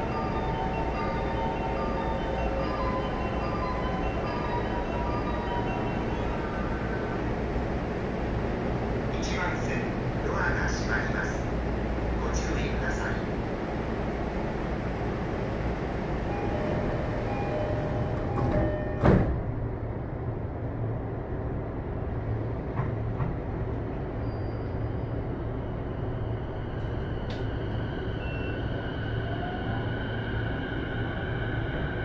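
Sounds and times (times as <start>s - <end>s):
train door chime: 0.0s - 6.9s, 16.3s - 19.5s
train cabin rumble: 0.0s - 24.7s.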